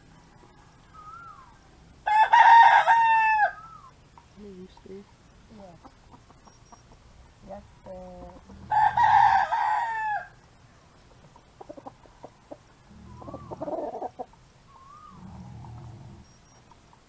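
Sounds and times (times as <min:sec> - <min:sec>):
rooster crowing: 0:00.0 - 0:03.9, 0:08.5 - 0:10.4.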